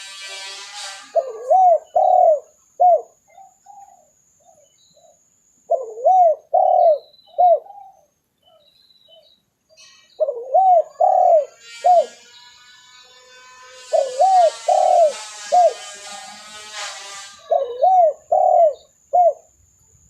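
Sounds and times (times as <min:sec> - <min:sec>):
dove cooing: 0:01.1 - 0:08.6, 0:10.2 - 0:12.2, 0:13.8 - 0:15.9, 0:17.4 - 0:19.5.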